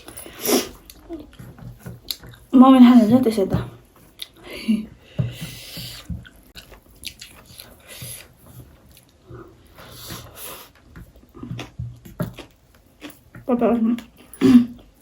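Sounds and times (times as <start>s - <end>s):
chewing and biting food: 5.6s - 14.3s.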